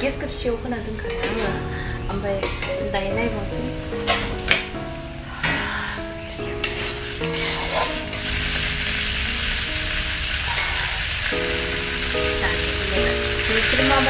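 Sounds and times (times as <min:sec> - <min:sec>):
meat sizzling in a wok: 0:06.7 - 0:14.0.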